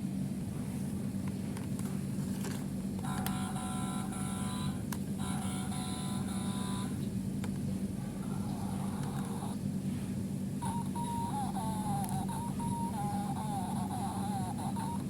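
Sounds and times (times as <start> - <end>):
low engine-like rumble: 0.0 - 15.0
high electronic tone: 10.6 - 15.0.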